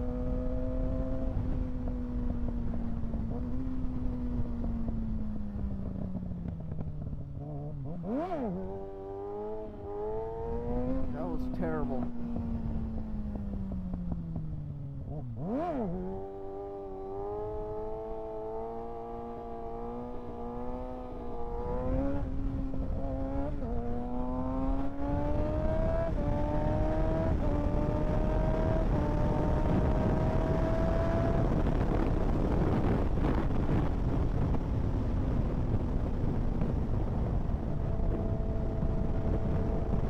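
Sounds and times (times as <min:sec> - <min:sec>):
motorcycle engine revving and shifting: 0:00.0 - 0:40.0
wind noise: 0:19.6 - 0:40.0.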